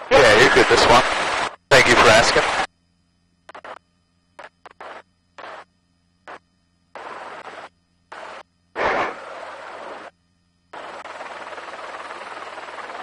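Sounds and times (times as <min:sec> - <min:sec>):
intercom static bursts: 0:00.0 - 0:02.7, 0:03.5 - 0:03.8, 0:04.4 - 0:10.1.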